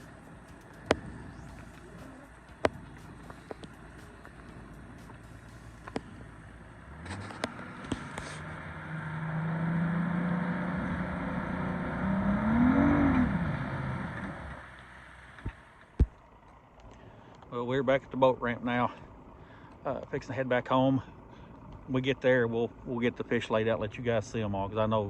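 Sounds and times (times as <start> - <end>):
vehicle engine accelerating: 0.0 - 15.9.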